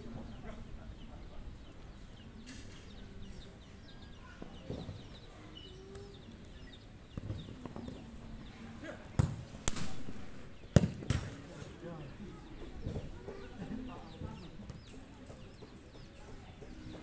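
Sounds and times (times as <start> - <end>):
birds chirping: 0.0 - 17.0
ball being kicked: 9.2 - 10.0, 10.7 - 11.4.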